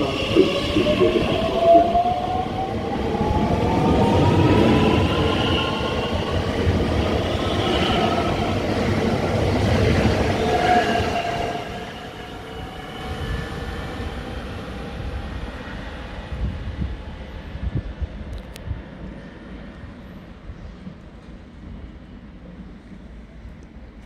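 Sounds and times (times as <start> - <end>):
train whine rising in pitch: 0.0 - 9.2.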